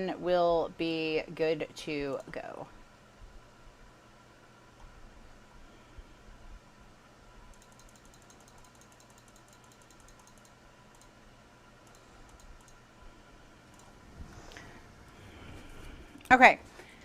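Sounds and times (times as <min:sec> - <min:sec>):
typing on computer keyboard: 0:07.5 - 0:11.1, 0:11.8 - 0:12.8.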